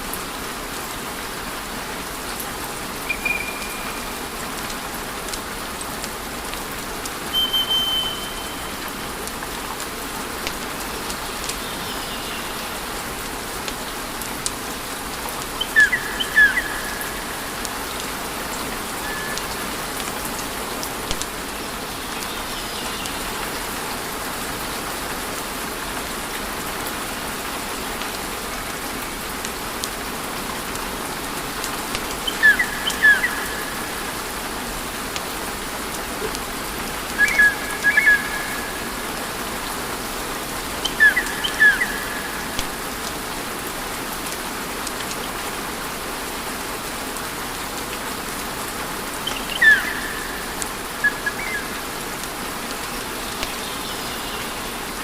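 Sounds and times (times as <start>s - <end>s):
high chirps: 7.4s - 8.8s.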